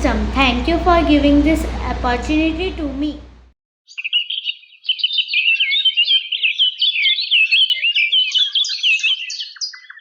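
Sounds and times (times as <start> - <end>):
birds chirping and twittering: 3.9 - 10.0.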